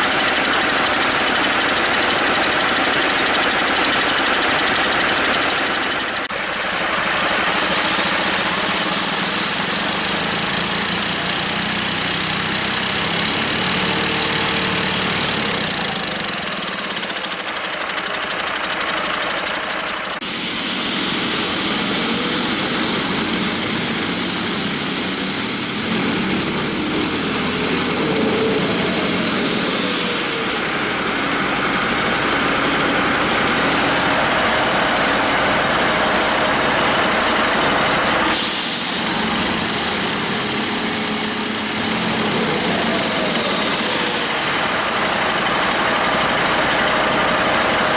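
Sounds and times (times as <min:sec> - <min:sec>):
diesel engine revving: 0:00.0 - 0:47.9
turbocharger whine: 0:00.0 - 0:47.9.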